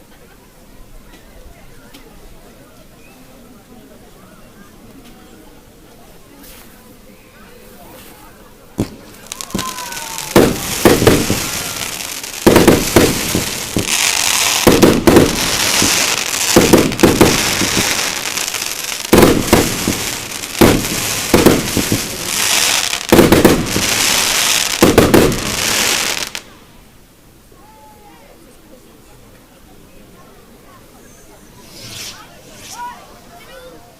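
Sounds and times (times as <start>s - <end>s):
fireworks bangs: 8.8s - 26.5s
fireworks crackling: 8.8s - 27.0s, 31.4s - 33.7s.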